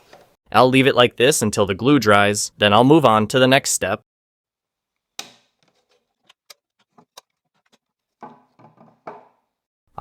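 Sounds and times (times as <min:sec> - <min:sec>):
wooden knocks and clicks: 0:05.2 - 0:09.5.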